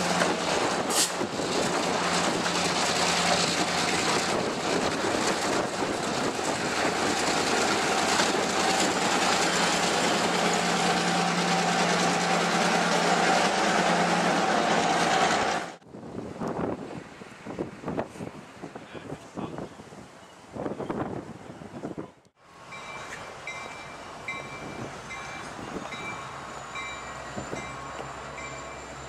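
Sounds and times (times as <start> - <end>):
train wheels clattering over rails: 0.0 - 15.8
diesel locomotive engine hum: 0.0 - 19.2, 20.6 - 29.0.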